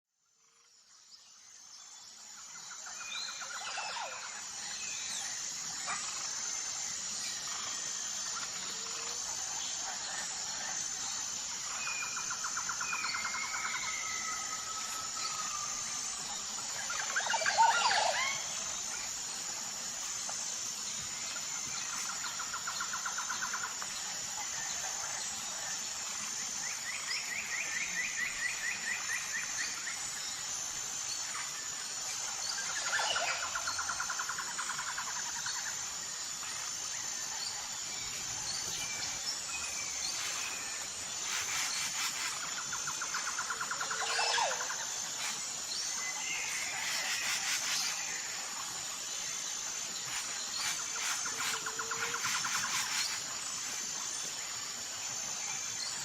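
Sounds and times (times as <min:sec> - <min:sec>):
steady high-pitched hum: 0:00.4 - 0:56.0
birds calling in trills: 0:38.1 - 0:48.0.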